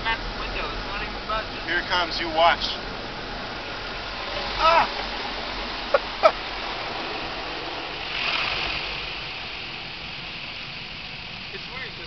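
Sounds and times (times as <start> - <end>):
car wash water spraying: 0.1 - 12.0
person crying out: 4.6 - 4.9.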